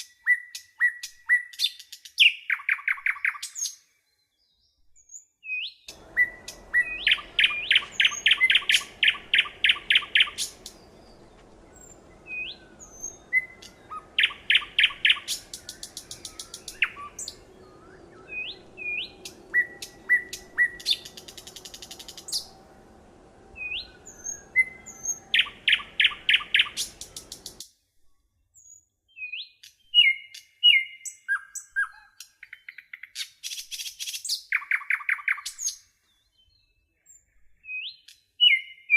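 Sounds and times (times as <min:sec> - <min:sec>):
songbirds chirping and trilling: 0:00.0 - 0:27.7, 0:28.6 - 0:38.9
faint low hum: 0:05.9 - 0:27.6.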